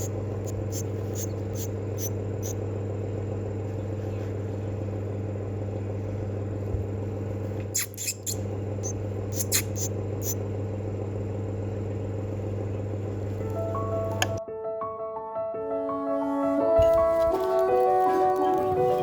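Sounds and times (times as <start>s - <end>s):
machine humming: 0.0s - 7.4s.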